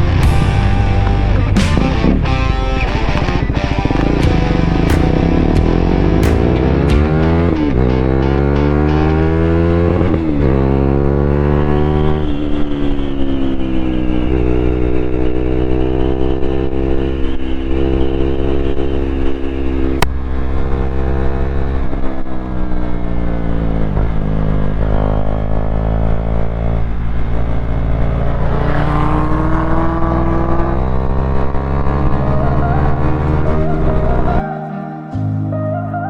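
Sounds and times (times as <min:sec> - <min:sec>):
motorcycle engine revving: 0:00.0 - 0:34.4
sharp click: 0:04.9 - 0:05.6.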